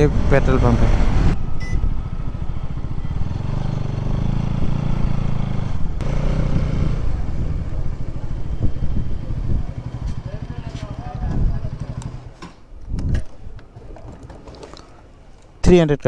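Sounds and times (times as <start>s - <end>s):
motorcycle engine running: 0.0s - 12.4s.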